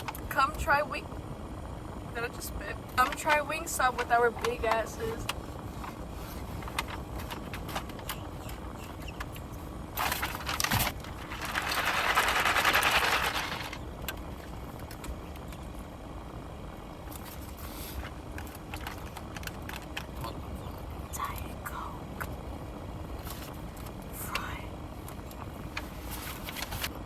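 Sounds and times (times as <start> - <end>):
steady low rumble: 0.0 - 27.0
food packaging clicks and rustles: 3.0 - 15.6, 17.1 - 20.3.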